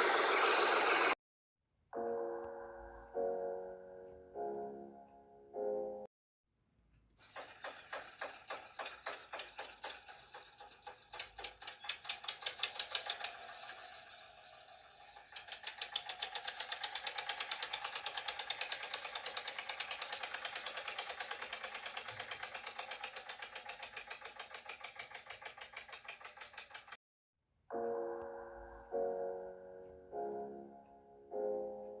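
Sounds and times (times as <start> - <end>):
toy tractor motor clicking: 7.2 - 27.0.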